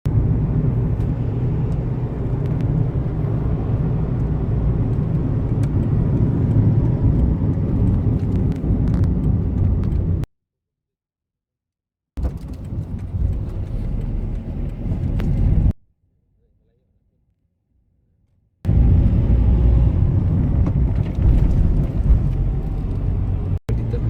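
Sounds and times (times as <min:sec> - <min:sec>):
car engine running: 0:18.7 - 0:24.0.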